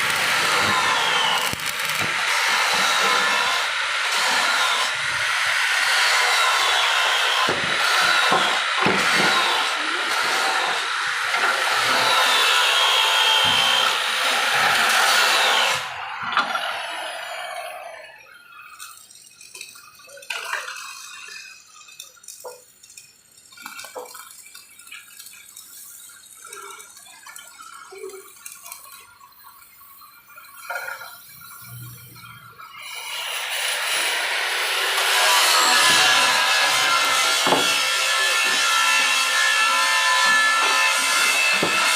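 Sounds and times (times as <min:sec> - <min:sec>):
angle grinder grinding steel: 0:00.0 - 0:18.3, 0:32.7 - 0:41.9.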